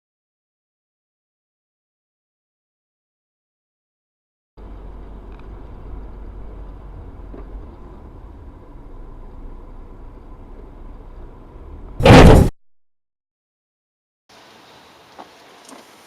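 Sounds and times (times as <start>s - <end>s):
car driving rumble: 4.6s - 12.5s.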